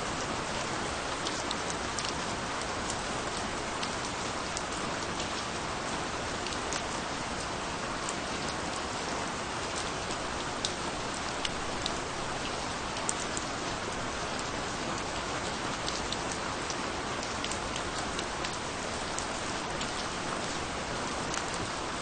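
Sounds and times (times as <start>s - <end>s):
steady rain falling: 0.0s - 22.0s
raindrop ticks: 1.2s - 5.5s, 10.1s - 13.5s, 15.7s - 20.2s.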